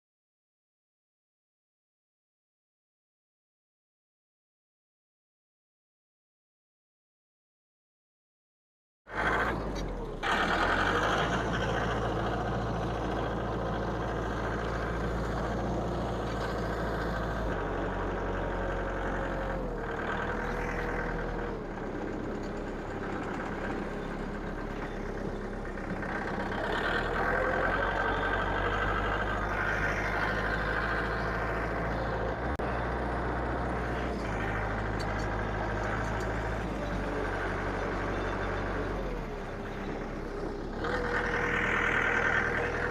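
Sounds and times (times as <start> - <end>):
engine running: 9.1 - 42.9.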